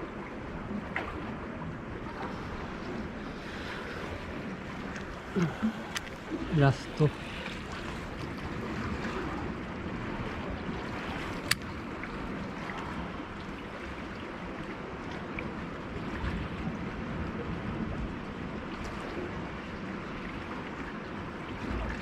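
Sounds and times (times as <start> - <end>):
sea waves washing: 0.0 - 15.2.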